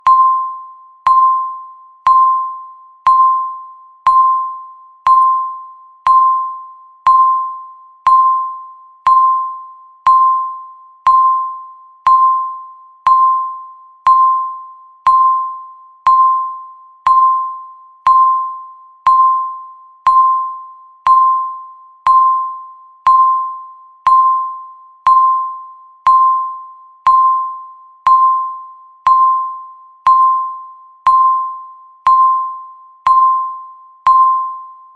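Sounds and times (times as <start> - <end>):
timer ringing dings: 0.0 - 34.8.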